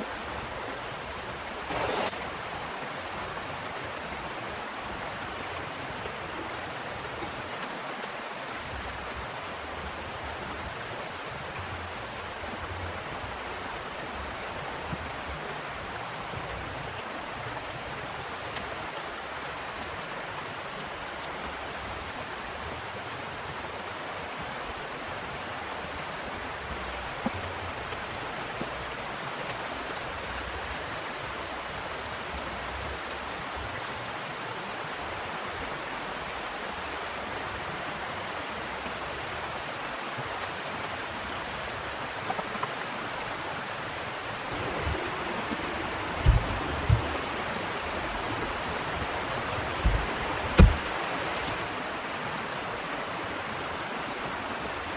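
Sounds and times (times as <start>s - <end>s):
heavy rain falling: 0.0s - 54.9s
dull low thumps: 44.6s - 51.0s.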